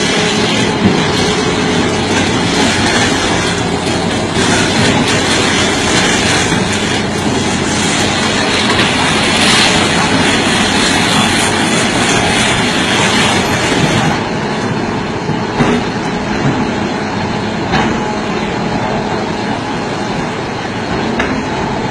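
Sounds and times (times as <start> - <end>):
machinery crushing rocks: 0.0 - 16.7.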